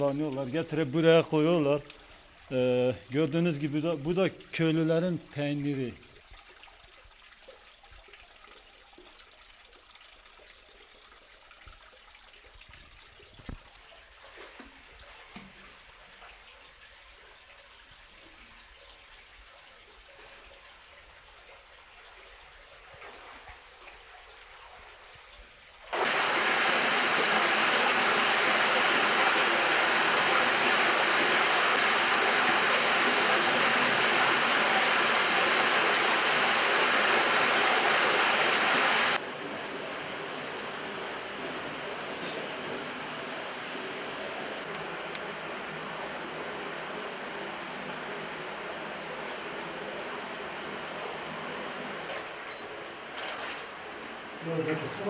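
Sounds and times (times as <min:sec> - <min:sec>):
rushing water in a cave: 0:19.5 - 0:39.2.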